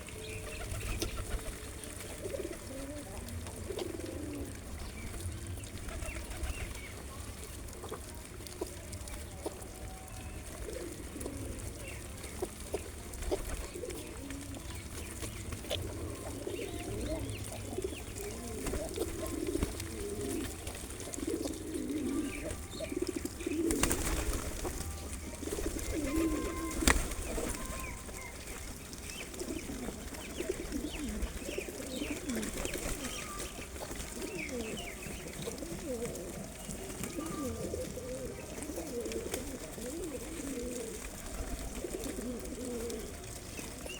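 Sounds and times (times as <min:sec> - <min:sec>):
pigeons cooing: 0:00.0 - 0:43.9
small birds chirping: 0:00.0 - 0:43.9.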